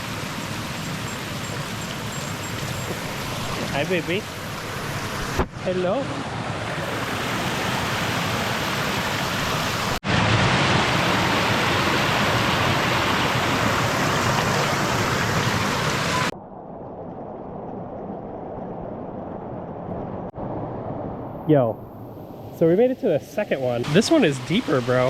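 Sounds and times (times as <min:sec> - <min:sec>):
creek and waterfall rushing: 0:00.0 - 0:16.3, 0:22.6 - 0:25.0.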